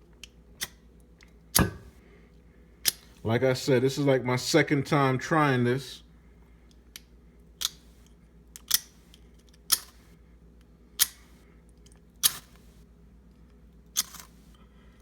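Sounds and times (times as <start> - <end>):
metal scraper striking fire-starter rod: 1.6 - 1.9.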